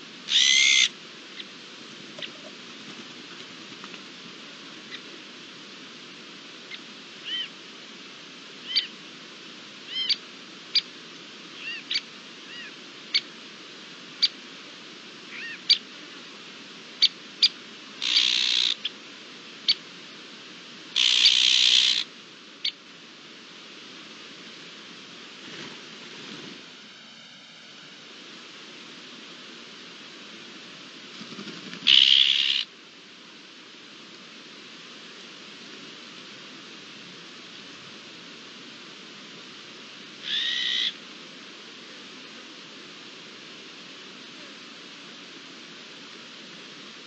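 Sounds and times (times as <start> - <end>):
bird call notes: 0.3 - 0.9
harsh rasping bird calls: 0.3 - 1.5, 17.0 - 18.9, 21.0 - 22.8, 31.8 - 32.7, 40.2 - 41.0.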